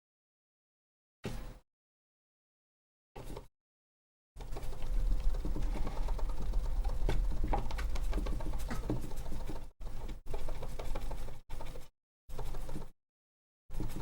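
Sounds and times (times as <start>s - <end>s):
low rumble: 4.6s - 9.4s.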